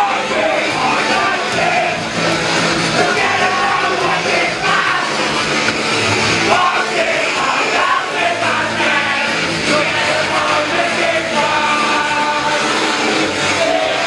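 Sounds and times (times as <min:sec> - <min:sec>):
shouted vocals: 0:00.0 - 0:05.6, 0:06.2 - 0:14.0
distorted guitars: 0:00.0 - 0:14.0
drums: 0:00.0 - 0:14.0.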